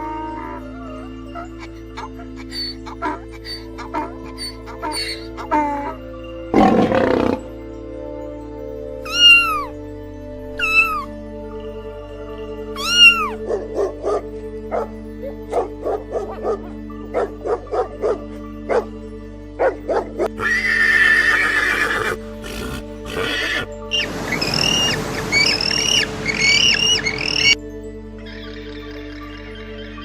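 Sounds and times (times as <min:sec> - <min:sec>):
background music: 0:00.0 - 0:30.0
bird chirping: 0:02.5 - 0:05.5, 0:23.9 - 0:27.6.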